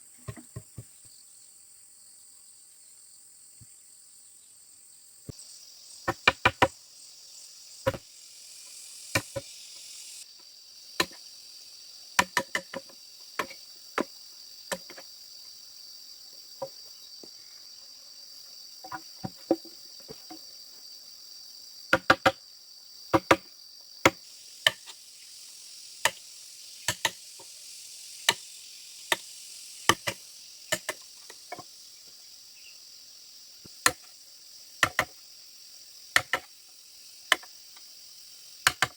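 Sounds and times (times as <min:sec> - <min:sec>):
high-pitched insect chorus: 0:00.0 - 0:38.9
tool striking bamboo: 0:06.1 - 0:06.7, 0:07.8 - 0:08.0, 0:09.2 - 0:09.5, 0:11.0 - 0:11.2, 0:12.2 - 0:14.1, 0:21.9 - 0:22.4, 0:23.1 - 0:24.9, 0:26.9 - 0:27.2, 0:29.9 - 0:31.7, 0:33.8 - 0:34.1, 0:34.8 - 0:35.2, 0:36.2 - 0:36.5, 0:38.6 - 0:38.9.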